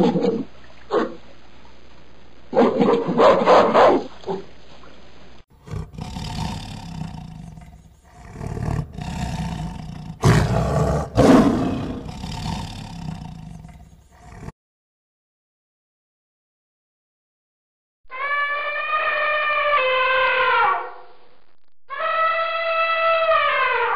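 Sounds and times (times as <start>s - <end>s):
tiger growling and roaring: 5.6s - 14.5s.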